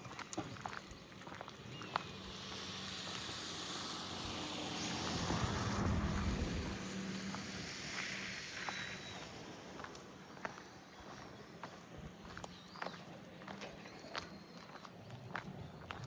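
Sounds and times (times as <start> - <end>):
motor vehicle passing by: 0.1 - 13.8.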